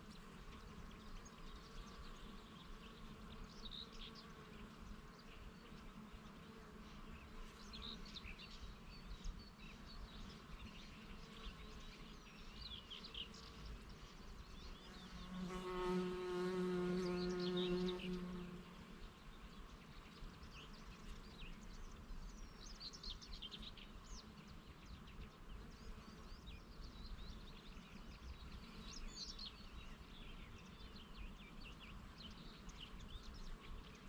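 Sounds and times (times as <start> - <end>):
faint insect hum: 0.0 - 34.0
bee buzzing: 14.8 - 19.1.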